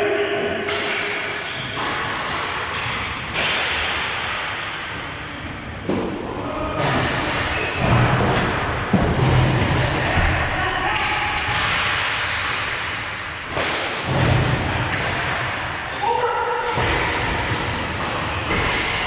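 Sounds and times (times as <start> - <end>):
echoing noisy din in hall: 0.0 - 19.0.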